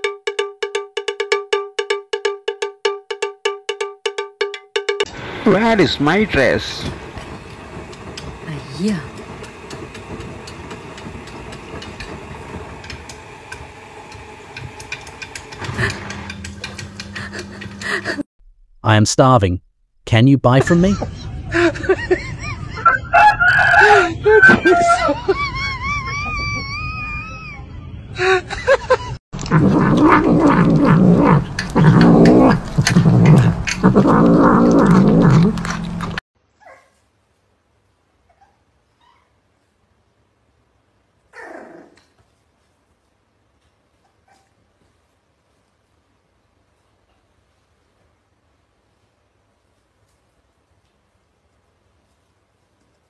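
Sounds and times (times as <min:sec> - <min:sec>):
washing machine tumbling laundry: 0:05.2 - 0:18.3, 0:29.4 - 0:36.2.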